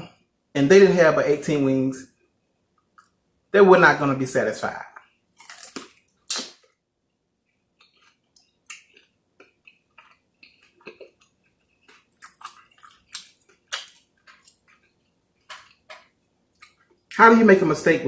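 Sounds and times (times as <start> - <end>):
person chewing food: 5.0 - 17.2.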